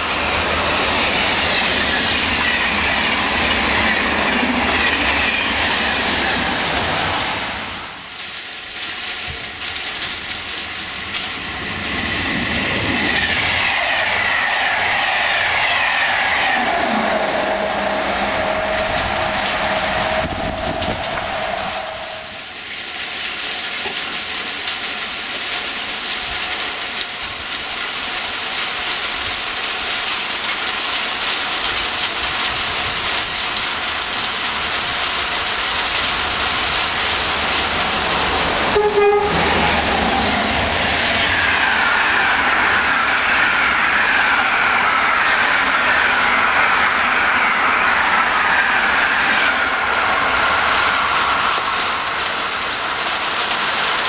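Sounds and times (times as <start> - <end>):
falling whine: 0.0 - 8.2, 11.0 - 23.0
rain: 0.0 - 54.0
train rushing through station: 0.0 - 54.0
train horn: 16.6 - 22.6, 38.6 - 40.6.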